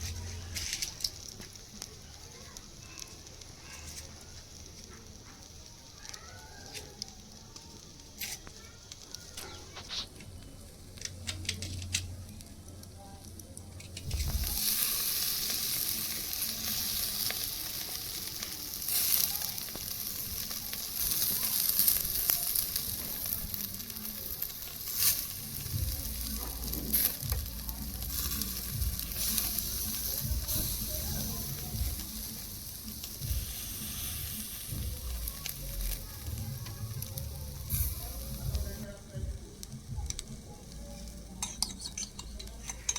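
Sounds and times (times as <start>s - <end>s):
food sizzling in hot oil: 0.0s - 10.2s, 14.0s - 40.3s
spoon stirring in pan: 40.9s - 42.9s.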